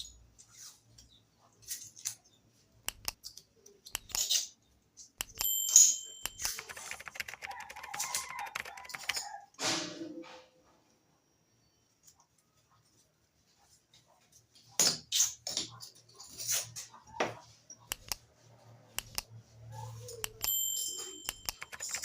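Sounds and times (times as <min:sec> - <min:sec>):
metal objects clicking and knocking: 0:02.9 - 0:09.3, 0:17.9 - 0:18.2, 0:20.2 - 0:22.0
ringing metallic clink: 0:05.4 - 0:06.4, 0:20.3 - 0:21.6.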